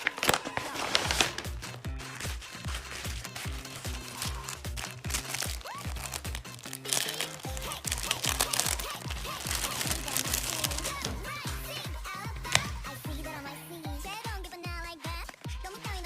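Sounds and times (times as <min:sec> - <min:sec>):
plastic packaging crinkling: 0:00.0 - 0:11.2
pop music with steady beat: 0:07.2 - 0:16.0.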